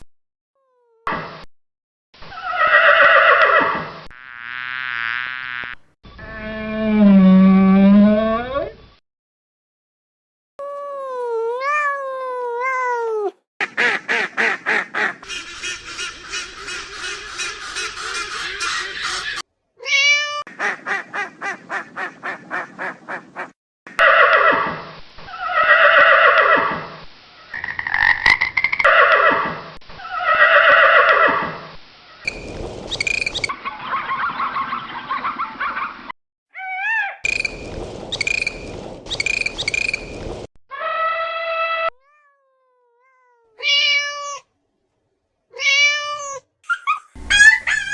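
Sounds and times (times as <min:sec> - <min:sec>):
ducks quacking: 0:13.6 - 0:19.4, 0:46.7 - 0:47.9.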